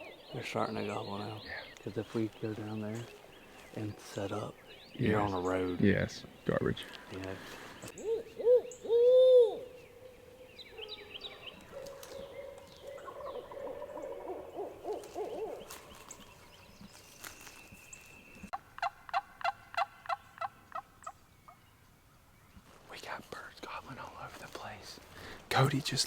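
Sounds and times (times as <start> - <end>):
owl hooting: 7.5 - 16.2
turkeys gobbling: 11.7 - 16.1, 18.8 - 20.9.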